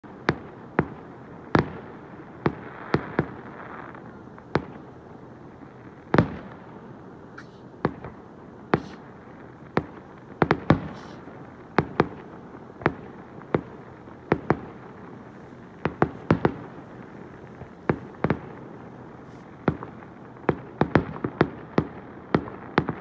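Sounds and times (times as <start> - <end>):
firework crackle: 0.0 - 23.0
firework shells booming: 7.4 - 9.1, 9.7 - 23.0.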